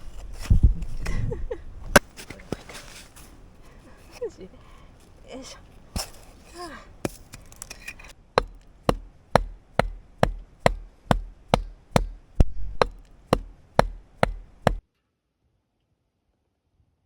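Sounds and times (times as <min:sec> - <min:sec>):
firewood being chopped: 0:05.8 - 0:14.8.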